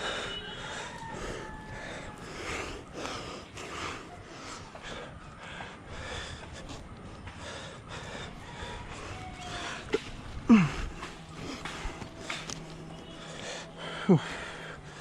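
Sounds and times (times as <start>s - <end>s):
person breathing hard: 0.0s - 15.0s
person grunting: 10.4s - 11.1s, 13.9s - 14.6s.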